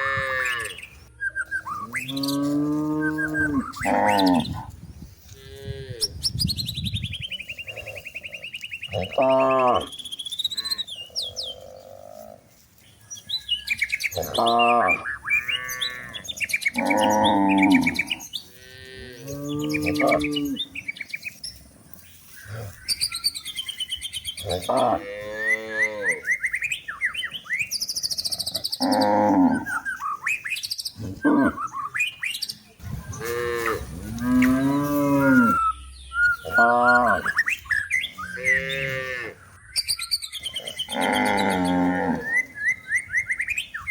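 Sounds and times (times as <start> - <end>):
cows mooing: 0.0 - 0.8, 2.0 - 6.1, 7.6 - 9.9, 14.1 - 20.8, 24.4 - 26.3, 28.5 - 29.8, 31.0 - 31.6, 33.1 - 35.6, 36.4 - 37.3, 38.3 - 39.4, 40.6 - 42.6
birds chirping and whistling: 0.0 - 43.9.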